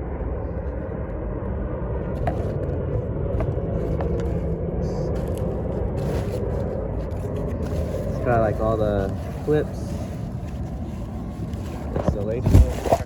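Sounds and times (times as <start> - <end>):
vehicle engine rumbling: 0.0 - 13.0
handling rustles: 2.2 - 2.8, 3.4 - 13.0.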